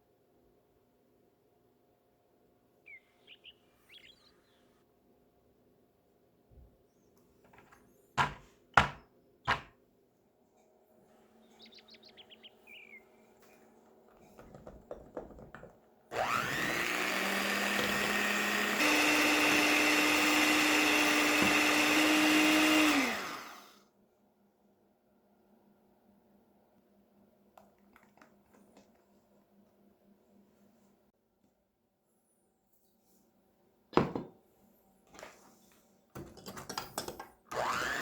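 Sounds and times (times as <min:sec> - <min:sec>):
blender motor running: 0:16.1 - 0:23.8, 0:37.5 - 0:38.0.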